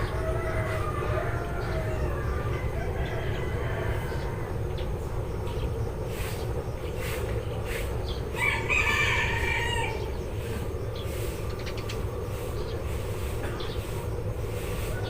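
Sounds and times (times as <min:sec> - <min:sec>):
rooster crowing: 0:00.0 - 0:05.0, 0:08.3 - 0:10.3
sparrows chirping: 0:00.0 - 0:15.0
steady low rumble: 0:00.0 - 0:15.0.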